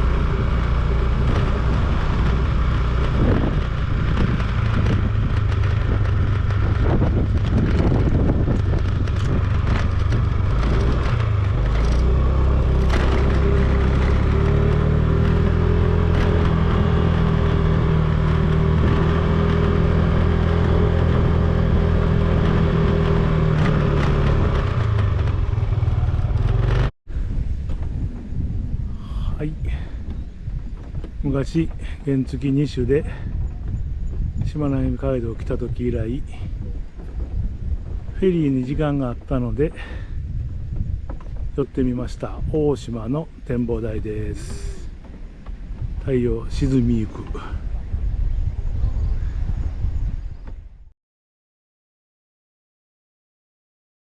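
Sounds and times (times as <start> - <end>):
motorcycle engine running: 0.0 - 41.6
road rumble: 0.0 - 50.9
wind on microphone: 0.0 - 50.9.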